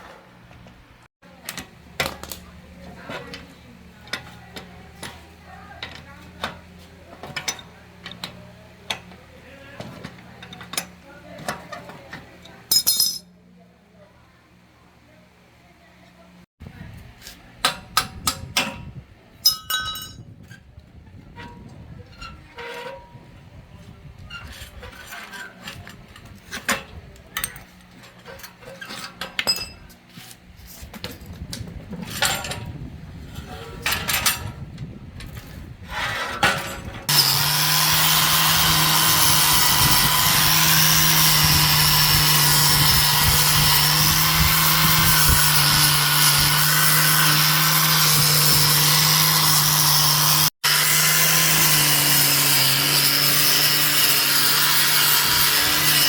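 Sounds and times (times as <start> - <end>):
power tool running with hiss: 37.1 - 56.0.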